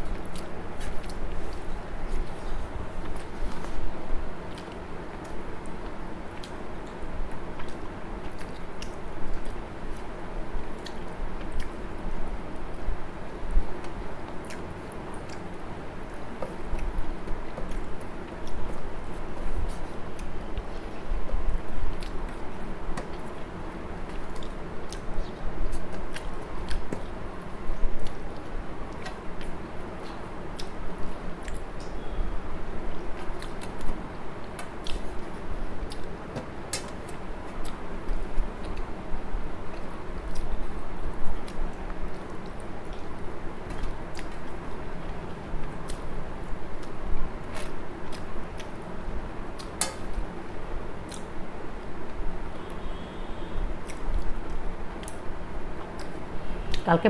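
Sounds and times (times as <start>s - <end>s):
person chewing food: 0.0s - 11.8s, 13.7s - 32.0s, 32.9s - 39.0s, 39.6s - 48.9s, 51.1s - 51.4s, 53.8s - 56.8s
lip and tongue clicks: 51.1s - 51.3s.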